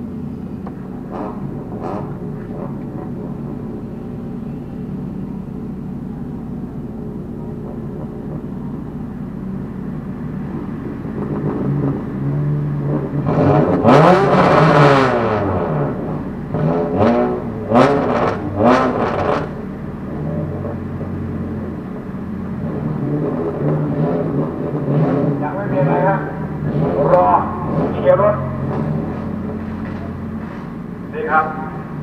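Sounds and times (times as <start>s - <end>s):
low hum in car cabin: 0.0s - 11.6s, 31.0s - 32.0s
car engines revving: 0.0s - 32.0s.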